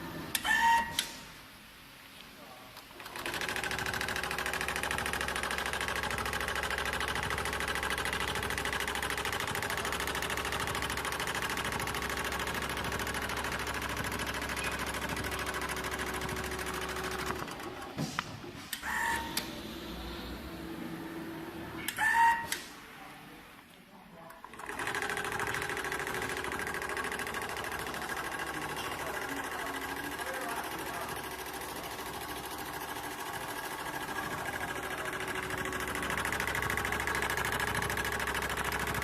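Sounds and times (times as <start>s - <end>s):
sewing machine stitching: 3.0s - 18.0s, 24.4s - 39.0s.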